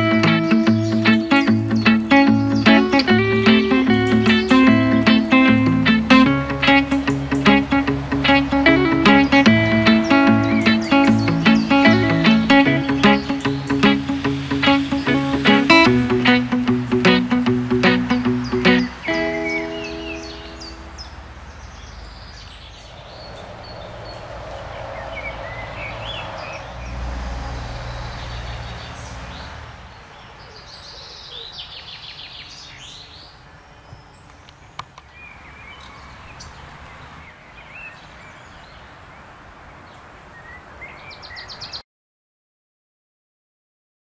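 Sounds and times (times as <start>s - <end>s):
small birds singing and chirping: 0.0s - 41.8s
low rumble: 22.8s - 29.4s.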